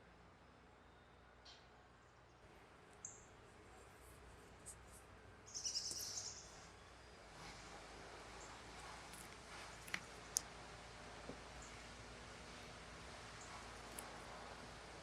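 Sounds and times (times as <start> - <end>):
high thin bird chirp: 5.5 - 6.7.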